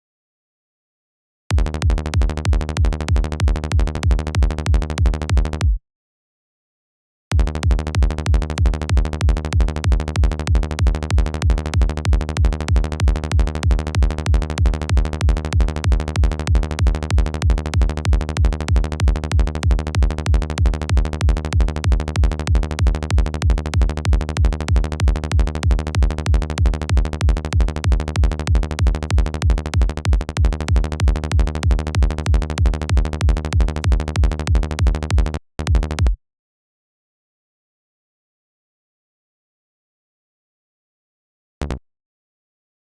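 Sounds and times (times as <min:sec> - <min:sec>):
electronic kick drum: 0:01.5 - 0:05.8, 0:07.3 - 0:36.2
synth bass: 0:01.5 - 0:05.8, 0:07.4 - 0:36.2.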